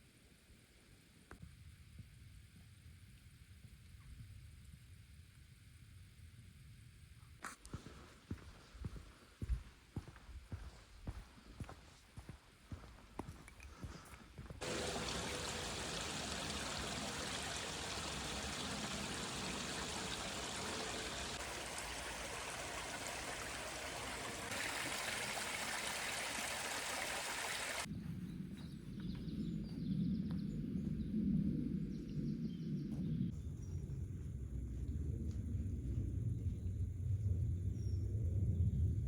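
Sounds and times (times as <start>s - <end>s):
stream water rushing: 14.6s - 27.9s
low rumble: 27.9s - 39.0s.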